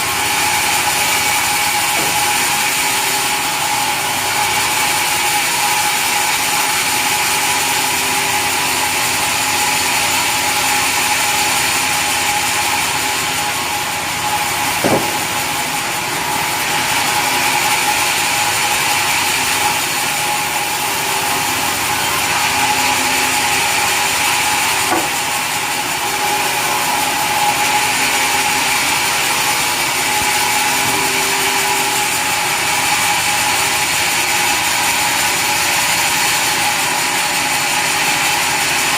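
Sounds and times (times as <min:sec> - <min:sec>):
sawmill saw cutting wood: 0:00.0 - 0:38.9
sharp knocks: 0:01.8 - 0:02.7, 0:14.7 - 0:15.7, 0:24.3 - 0:25.4.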